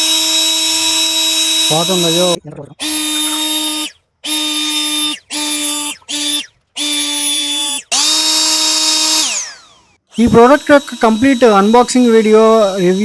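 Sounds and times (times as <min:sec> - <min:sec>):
blower motor whining: 0:00.0 - 0:13.0.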